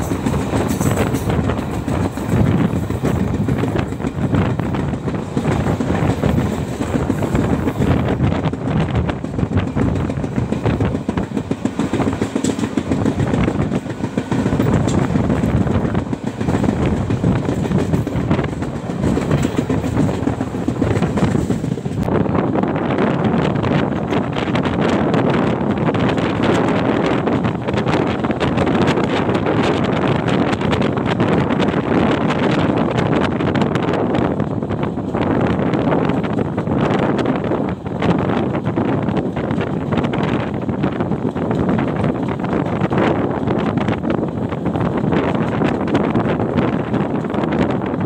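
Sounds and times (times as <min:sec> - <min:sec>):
train coach clicks and rattles: 0:00.0 - 0:22.1, 0:23.4 - 0:48.0
train wheels rumbling on rails: 0:00.0 - 0:48.0.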